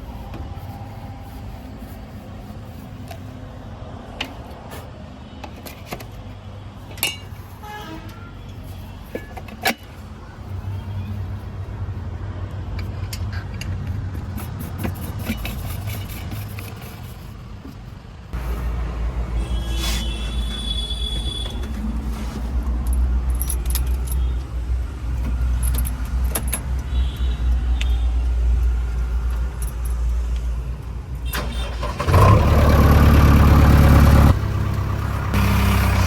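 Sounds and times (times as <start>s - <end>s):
diesel engine running: 30.0s - 36.0s.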